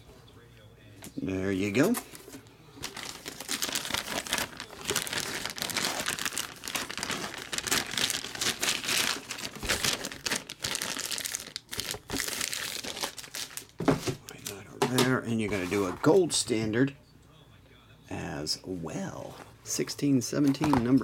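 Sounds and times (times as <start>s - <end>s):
plastic wrapping crinkling: 1.6s - 14.7s.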